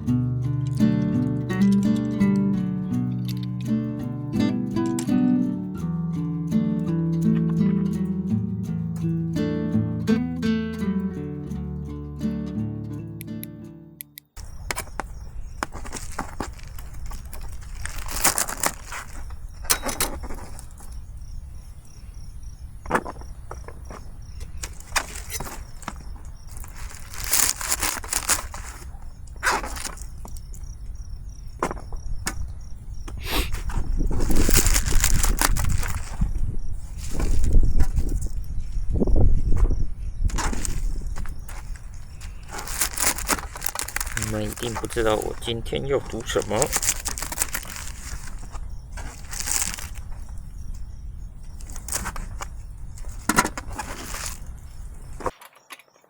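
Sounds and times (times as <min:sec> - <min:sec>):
crickets chirping: 0:00.0 - 0:13.4, 0:14.2 - 0:56.0
rustling: 0:14.4 - 0:22.2, 0:22.8 - 0:30.8, 0:33.1 - 0:55.4
plastic packaging crinkling: 0:15.6 - 0:19.5, 0:24.5 - 0:30.3, 0:33.6 - 0:38.4, 0:40.3 - 0:50.4, 0:51.6 - 0:55.3.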